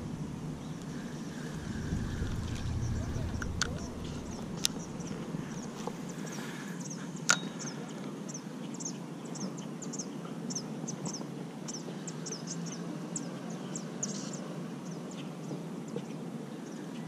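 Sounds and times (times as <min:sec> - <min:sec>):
low outdoor rumble: 0:00.0 - 0:07.0
small birds chirping: 0:00.0 - 0:17.0.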